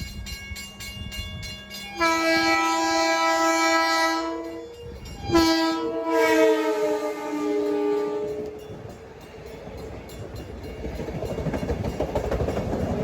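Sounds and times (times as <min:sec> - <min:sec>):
train horn blasts: 0:01.7 - 0:08.8.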